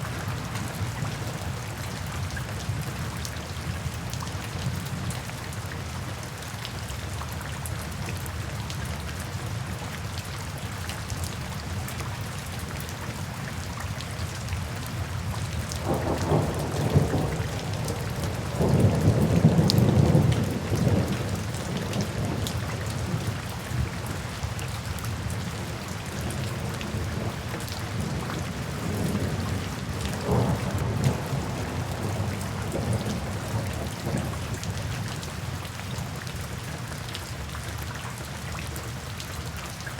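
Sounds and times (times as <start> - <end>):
steady rain in a forest: 0.0 - 39.9
rolling thunder: 15.8 - 23.1, 28.0 - 34.5.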